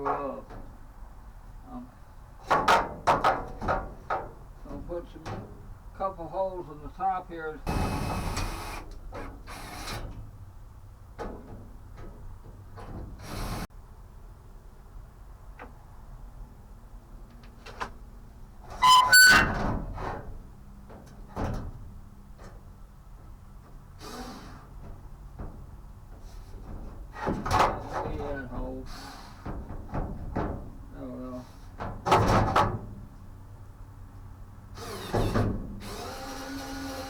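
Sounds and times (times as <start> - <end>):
metallic squeak and clatter: 18.7 - 20.2.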